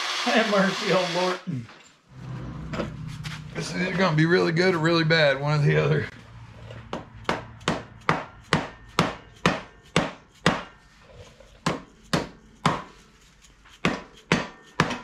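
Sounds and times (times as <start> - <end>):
hammer striking metal: 6.9 - 10.8, 11.6 - 13.0, 13.8 - 15.0.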